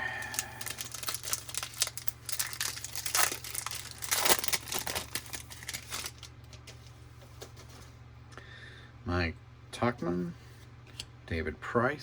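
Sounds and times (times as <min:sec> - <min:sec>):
foil wrapper crinkling and tearing: 0:00.1 - 0:06.3.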